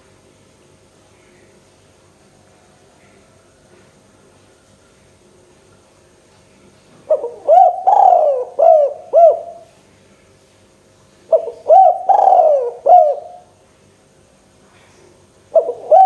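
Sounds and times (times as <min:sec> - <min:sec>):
dove cooing: 0:07.1 - 0:09.7, 0:11.3 - 0:13.5, 0:15.5 - 0:16.0.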